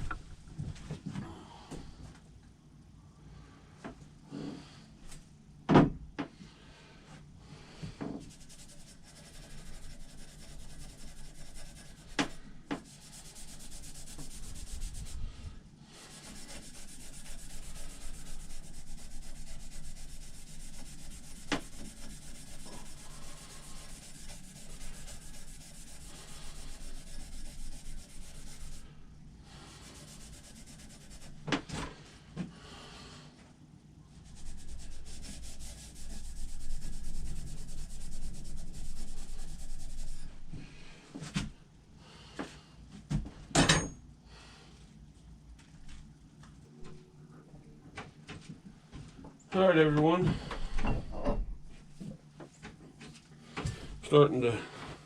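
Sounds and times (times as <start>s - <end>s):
abrasive pad scrubbing metal: 8.2s - 15.3s, 16.0s - 29.0s, 29.7s - 31.5s, 34.3s - 40.4s.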